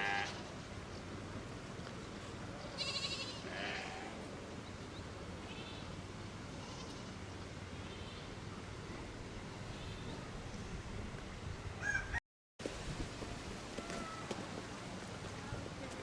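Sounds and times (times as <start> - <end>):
farm animals bleating: 0.0 - 0.5, 2.8 - 4.2, 5.5 - 5.9, 6.5 - 7.2.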